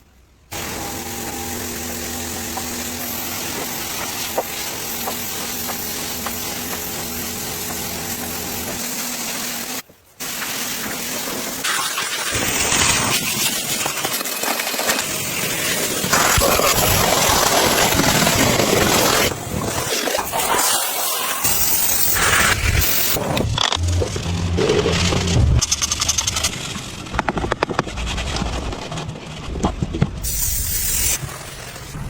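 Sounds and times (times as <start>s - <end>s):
engine running steadily: 0.5s - 9.8s
loud steady hiss: 0.5s - 24.0s, 30.2s - 32.0s.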